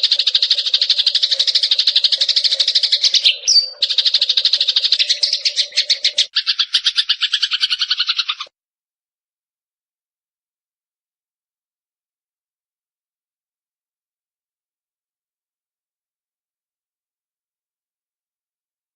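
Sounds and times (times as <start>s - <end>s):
sparrow rattling trill: 0.0s - 8.5s.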